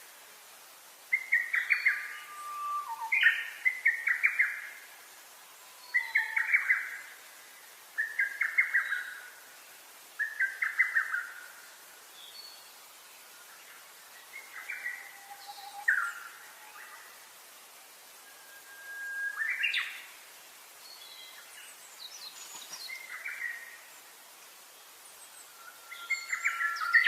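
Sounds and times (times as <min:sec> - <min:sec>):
thin low bird whistle: 0:01.1 - 0:04.6, 0:14.3 - 0:17.2, 0:18.2 - 0:20.1.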